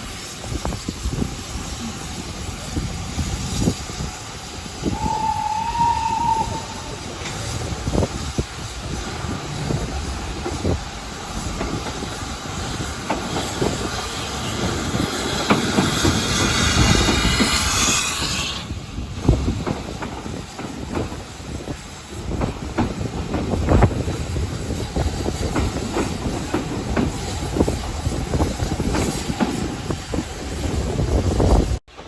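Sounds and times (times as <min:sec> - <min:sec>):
loud steam hiss: 0:00.0 - 0:32.0
train wheels clattering over rail joints: 0:06.1 - 0:32.0.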